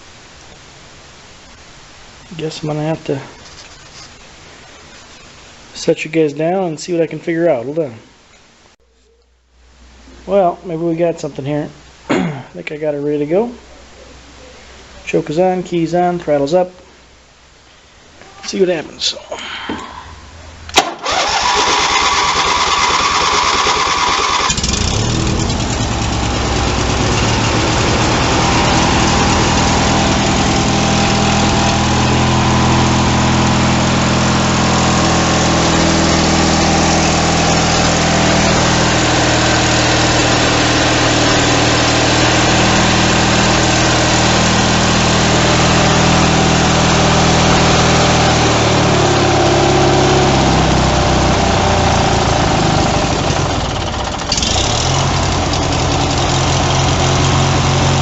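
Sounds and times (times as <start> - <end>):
electric starter cranking: 20.7 - 58.0
mower engine running: 20.8 - 58.0.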